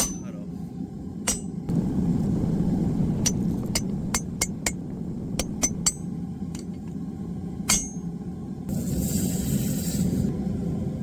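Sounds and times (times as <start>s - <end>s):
hammer striking hot steel on anvil: 0.0s - 0.4s, 1.2s - 6.9s, 7.7s - 8.1s
steady low rumble: 0.0s - 8.7s.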